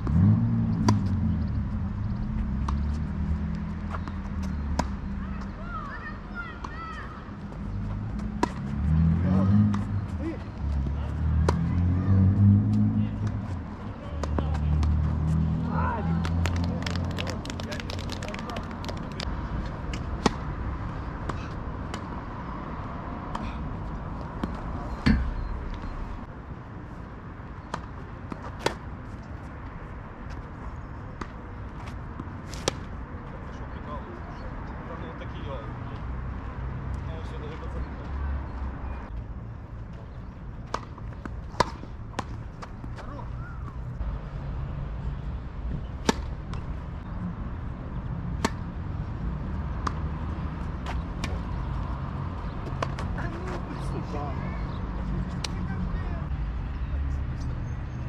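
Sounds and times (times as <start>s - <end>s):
tennis ball bouncing on court: 0.8s - 1.2s, 3.8s - 5.5s, 8.2s - 8.8s, 19.9s - 20.5s, 40.6s - 43.8s, 46.0s - 46.7s, 48.4s - 48.6s, 49.8s - 50.1s, 50.8s - 51.9s, 52.6s - 53.6s
tennis ball hit by rackets: 3.9s - 5.0s, 8.2s - 8.7s, 19.9s - 20.5s, 27.7s - 28.8s, 31.2s - 32.9s, 40.6s - 43.8s, 46.0s - 46.7s, 48.4s - 48.6s, 49.8s - 50.1s, 52.7s - 53.6s.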